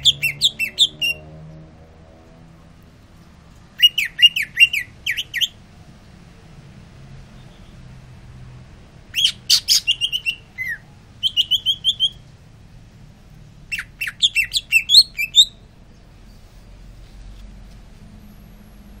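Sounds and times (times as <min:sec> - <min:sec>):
bird singing sharp sliding chirps: 0:00.0 - 0:01.2, 0:03.8 - 0:05.6, 0:09.2 - 0:12.2, 0:13.7 - 0:15.6.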